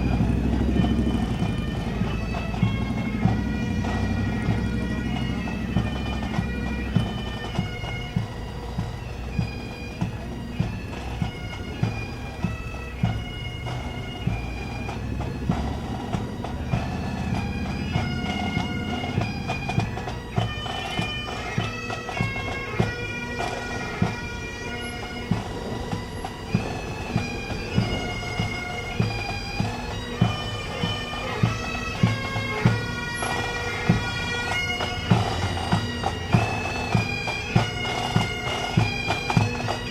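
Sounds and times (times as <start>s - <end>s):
bagpipes playing a tune: 0.0s - 39.9s
drum beat: 13.0s - 21.4s.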